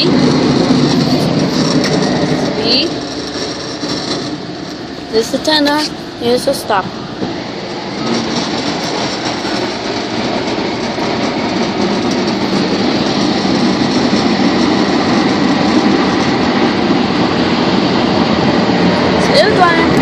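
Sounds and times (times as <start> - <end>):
car wash machine rushing: 0.0 - 20.0.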